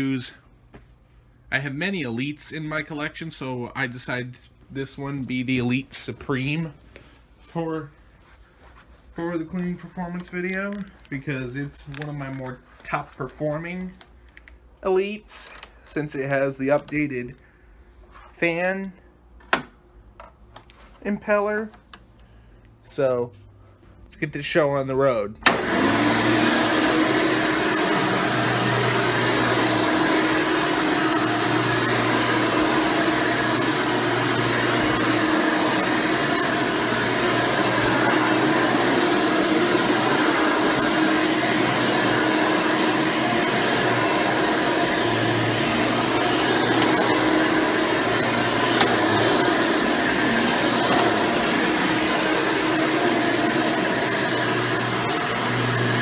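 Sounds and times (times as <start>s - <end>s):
upright vacuum cleaner running: 25.5s - 56.0s.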